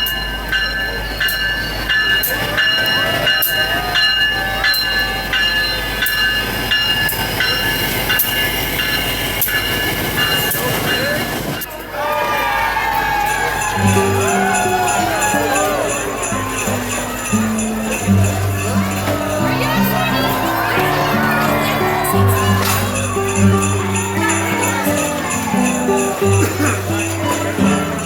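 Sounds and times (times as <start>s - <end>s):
train wheels squealing: 0.0s - 11.8s, 13.1s - 28.0s
wheels clicking over rail joints: 0.0s - 28.0s.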